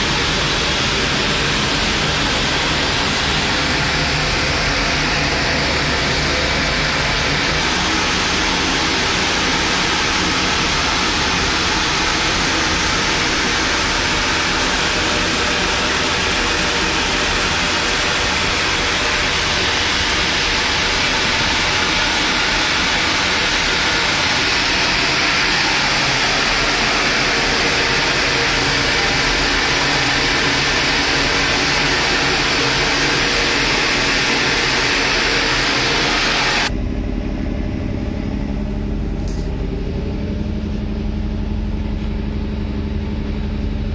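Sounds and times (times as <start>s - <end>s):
large machine rushing noise: 0.0s - 43.9s
low machine hum: 0.0s - 43.9s.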